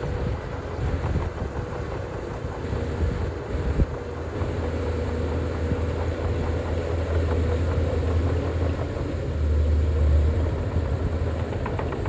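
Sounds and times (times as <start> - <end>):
heavy machinery diesel engine rumbling: 0.0 - 12.0.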